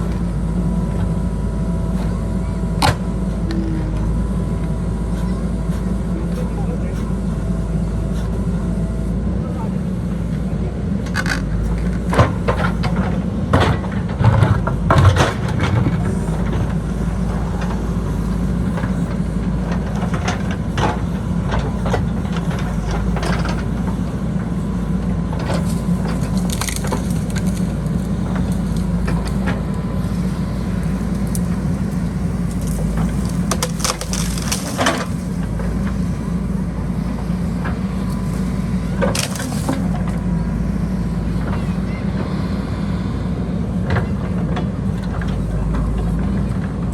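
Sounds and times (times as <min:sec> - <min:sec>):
diesel engine under load: 0:00.0 - 0:46.9
soil and stones crunching: 0:11.2 - 0:41.6.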